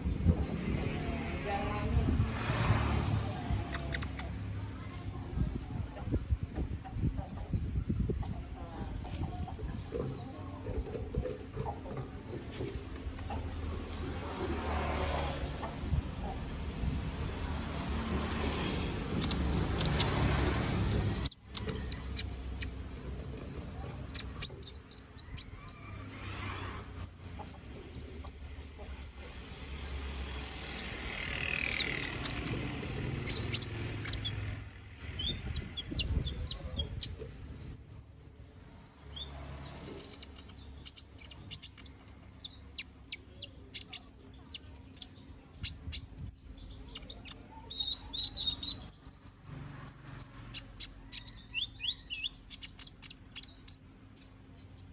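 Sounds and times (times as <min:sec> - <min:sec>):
bird chirping and trilling: 0:18.9 - 0:20.4, 0:21.1 - 0:23.1, 0:24.1 - 0:54.9.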